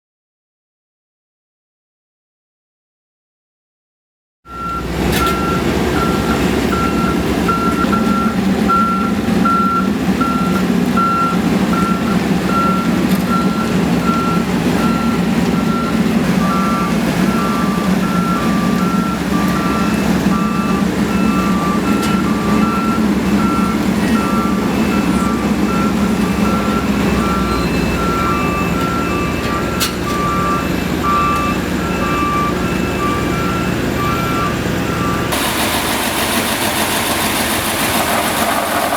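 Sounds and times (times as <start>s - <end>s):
machine engines droning: 4.5s - 38.9s
reversing alarms beeping: 4.5s - 38.9s.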